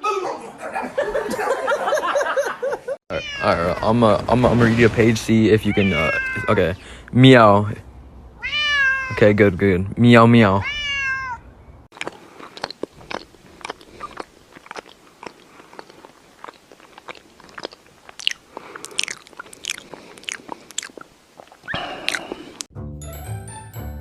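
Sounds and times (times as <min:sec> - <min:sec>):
crisp food being chewed: 0:11.9 - 0:22.7.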